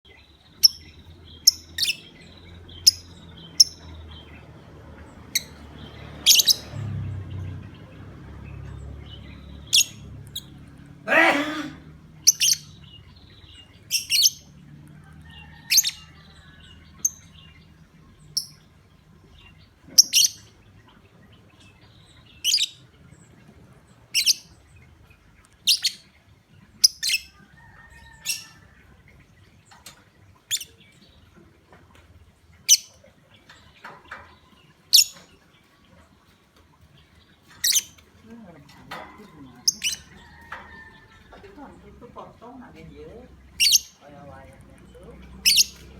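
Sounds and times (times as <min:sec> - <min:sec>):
lovebird chirping: 0:00.1 - 0:04.5, 0:05.2 - 0:06.9, 0:08.8 - 0:10.6, 0:12.2 - 0:14.6, 0:19.3 - 0:23.3, 0:24.1 - 0:24.9, 0:25.5 - 0:26.1, 0:26.7 - 0:28.7, 0:30.4 - 0:31.2, 0:32.6 - 0:35.5, 0:37.3 - 0:38.4, 0:41.4 - 0:45.9.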